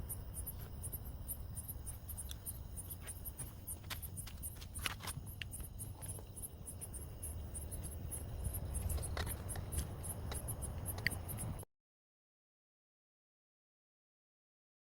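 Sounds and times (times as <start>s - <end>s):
crickets chirping: 0.0s - 11.6s.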